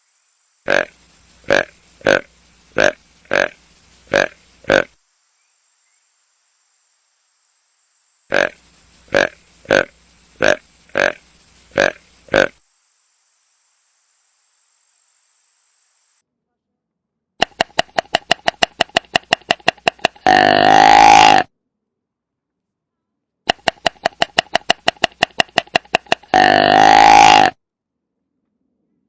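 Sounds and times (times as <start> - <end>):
deep pitched animal call: 0.7 - 4.9, 8.3 - 12.5, 17.4 - 21.5, 23.5 - 27.6
rapid pulsing animal call: 0.7 - 4.9, 8.3 - 12.6, 17.4 - 21.5, 23.5 - 27.6.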